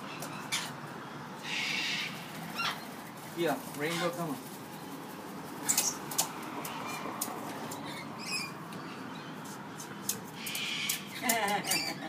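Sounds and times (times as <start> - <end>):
bird squeaking: 0.0 - 0.8, 1.4 - 3.0, 5.6 - 6.1, 7.7 - 8.6
raspy bird call: 1.4 - 2.8.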